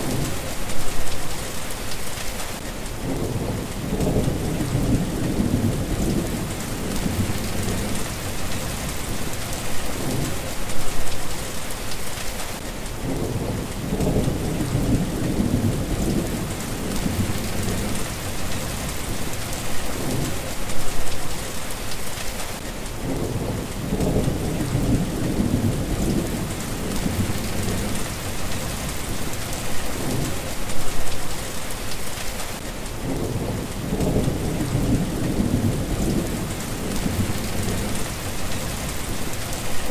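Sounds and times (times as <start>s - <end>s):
steady rain falling: 0.0s - 39.9s
thunder rumbling: 3.0s - 11.4s, 13.0s - 21.2s, 23.0s - 31.2s, 33.0s - 39.9s.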